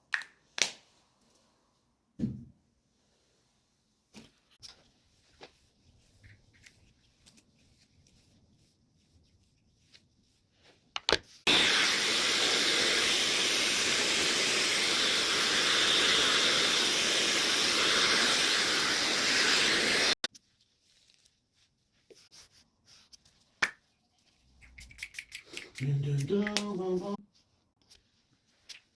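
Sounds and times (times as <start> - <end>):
hair dryer blowing: 11.5 - 20.2.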